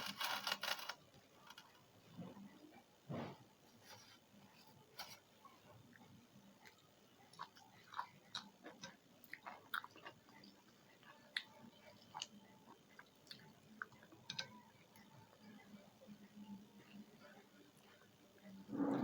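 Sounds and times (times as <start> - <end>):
person chewing food: 5.9 - 15.1.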